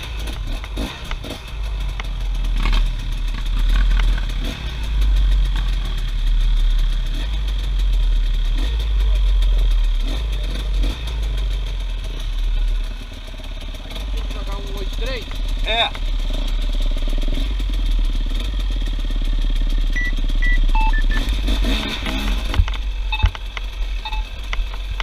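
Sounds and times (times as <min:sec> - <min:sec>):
off-road vehicle engines rumbling: 0:00.0 - 0:25.0
clicks and clatter: 0:00.2 - 0:04.4, 0:21.0 - 0:25.0.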